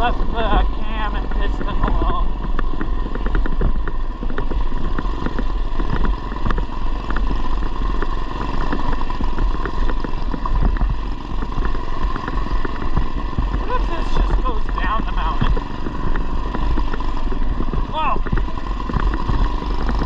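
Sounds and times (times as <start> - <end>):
mini bike engine running: 0.0 - 20.0
wind rumble on microphone: 0.0 - 20.0.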